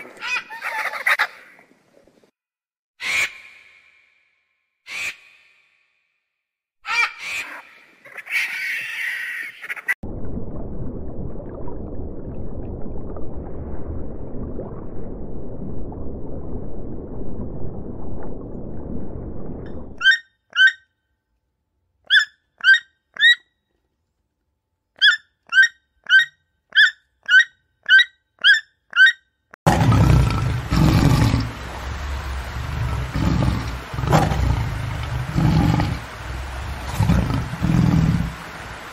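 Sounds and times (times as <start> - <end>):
low steady rumbling: 10.0 - 20.0, 29.7 - 38.9.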